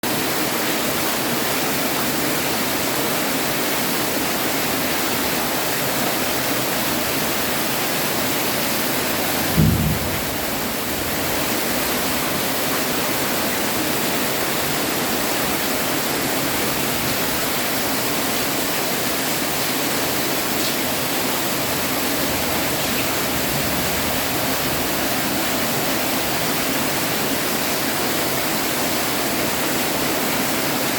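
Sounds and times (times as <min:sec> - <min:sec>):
heavy rain falling: 0:00.0 - 0:30.9
low thump: 0:09.4 - 0:10.9.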